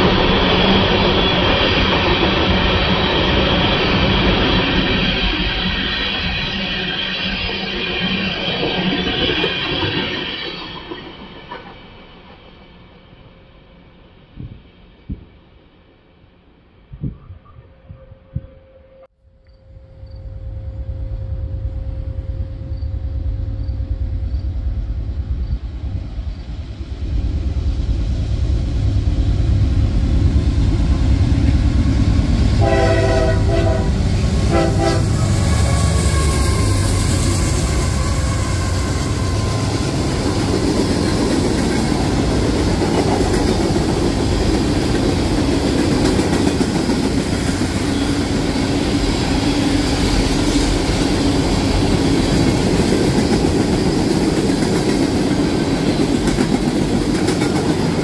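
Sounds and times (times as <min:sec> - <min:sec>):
diesel train rumble: 0:00.0 - 0:58.0
train horn blasts: 0:32.6 - 0:40.2.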